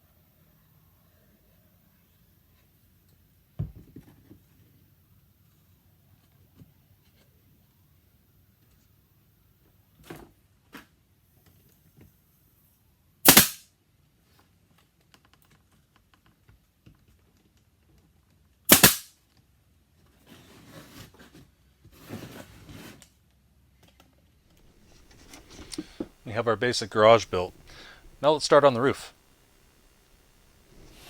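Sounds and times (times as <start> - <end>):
nail gun firing: 13.3 - 13.6, 18.7 - 19.1
wood rustling being handled: 24.6 - 28.4.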